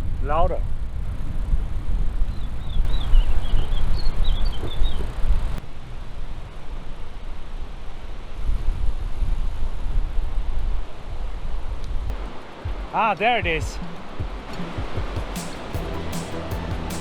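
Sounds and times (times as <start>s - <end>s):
rushing waterfall: 12.1s - 17.0s.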